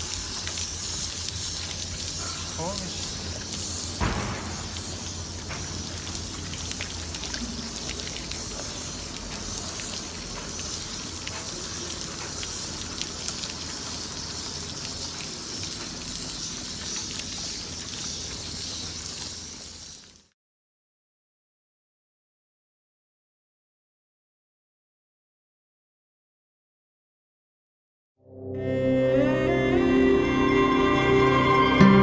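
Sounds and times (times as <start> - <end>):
water spraying on a surface: 0.0 - 20.3.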